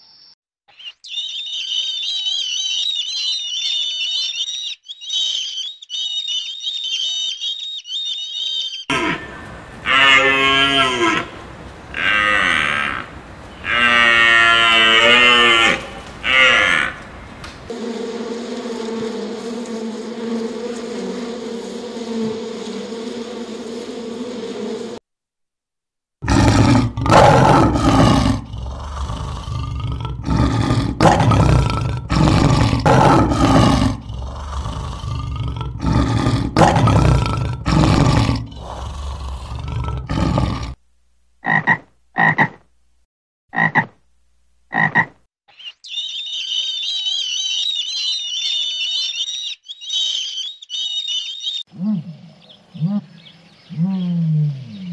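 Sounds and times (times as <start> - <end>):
honeybees buzzing: 8.9 - 25.0
lion roaring: 26.2 - 40.8
frog croaking: 41.4 - 42.6, 43.5 - 44.0, 44.7 - 45.2.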